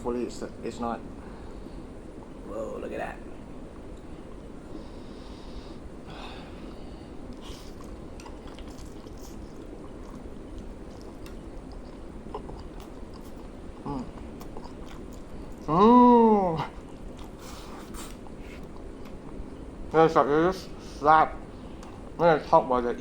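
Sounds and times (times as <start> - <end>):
fan noise: 0.0 - 23.0
chewing and lip-smacking: 6.6 - 15.8, 16.6 - 19.9, 20.7 - 22.5.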